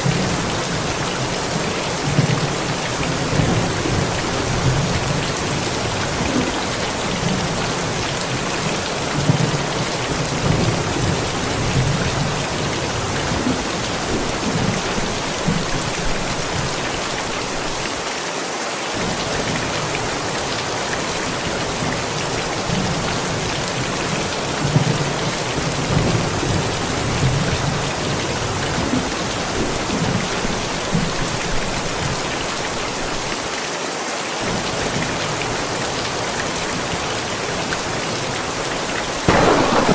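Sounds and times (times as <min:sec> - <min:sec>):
heavy rain falling: 0:00.0 - 0:39.9
low thunder rumbling: 0:39.3 - 0:39.9.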